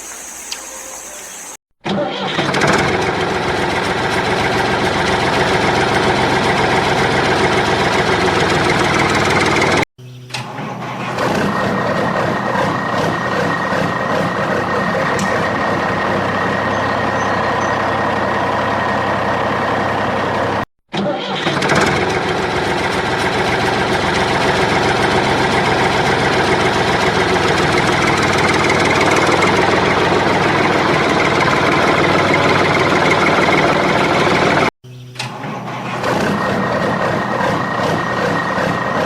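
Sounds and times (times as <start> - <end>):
engine idling rumble: 3.0 - 9.8, 10.8 - 20.6, 22.0 - 34.7.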